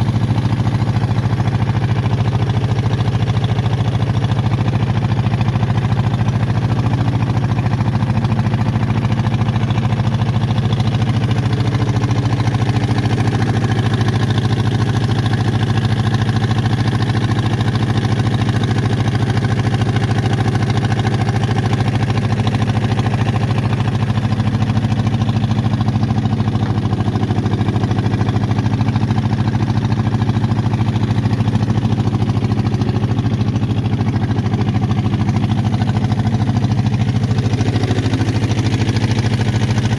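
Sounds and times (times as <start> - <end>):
small boat engine running: 0.0 - 39.9.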